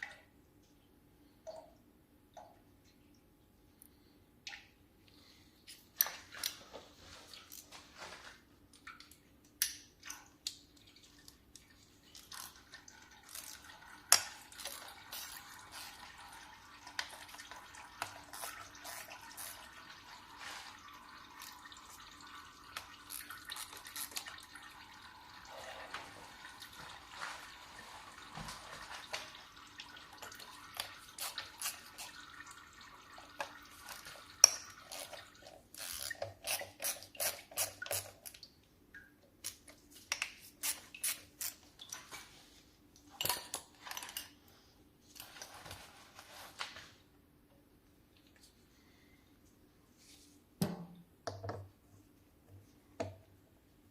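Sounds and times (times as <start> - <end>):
oil trickling and dripping: 0.0 - 42.2.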